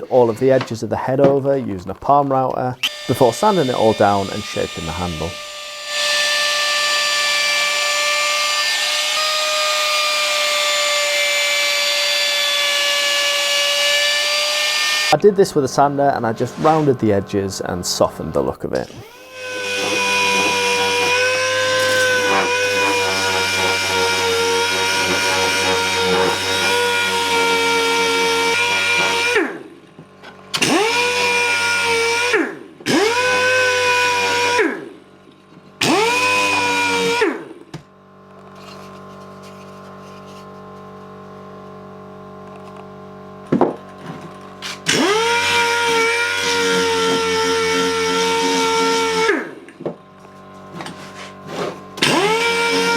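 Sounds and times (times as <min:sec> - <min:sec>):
wood being cut hiss: 0:02.8 - 0:07.8, 0:13.1 - 0:29.5
electric sander running: 0:02.8 - 0:29.7, 0:30.6 - 0:34.8, 0:35.8 - 0:37.6, 0:44.0 - 0:52.9
power tool motor whine: 0:02.8 - 0:29.8, 0:30.5 - 0:35.0, 0:35.8 - 0:40.5, 0:44.0 - 0:52.9.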